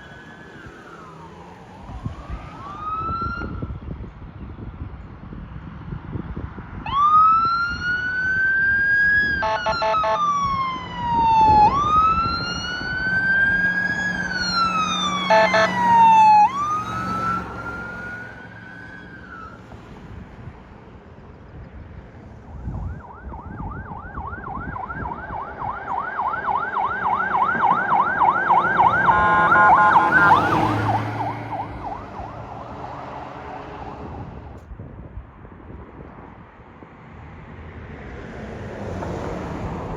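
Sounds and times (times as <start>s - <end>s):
fire engine siren: 0.0s - 3.8s, 6.8s - 20.0s, 22.4s - 34.4s
horn blasts: 9.4s - 10.2s, 15.2s - 16.0s, 28.6s - 31.1s.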